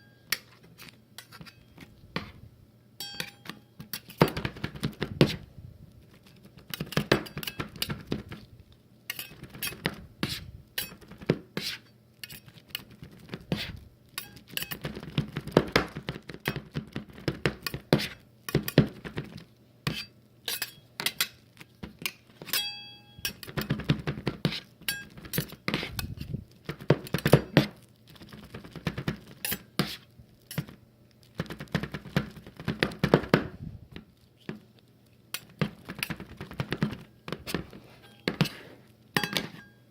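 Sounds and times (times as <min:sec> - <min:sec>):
utensils scraping on a plate: 0:00.2 - 0:02.4, 0:03.0 - 0:04.3, 0:09.1 - 0:14.9, 0:19.9 - 0:21.4, 0:24.4 - 0:26.4, 0:29.3 - 0:30.7, 0:37.4 - 0:39.8.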